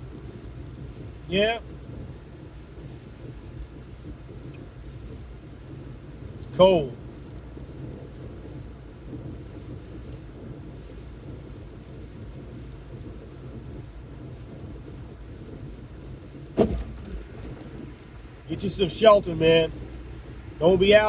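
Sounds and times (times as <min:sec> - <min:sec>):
car engine and tyres rumbling: 0:00.0 - 0:21.0
short sharp knock: 0:16.6 - 0:17.2.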